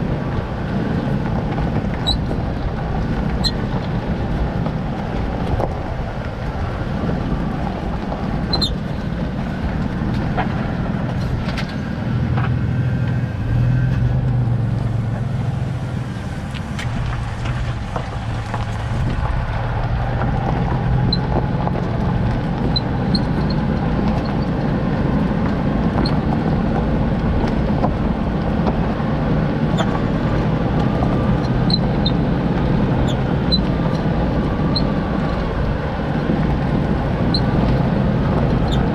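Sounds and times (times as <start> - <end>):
low hum: 0.0 - 38.7
car engine and road noise: 0.0 - 38.9
high-pitched squeaks: 8.5 - 9.1.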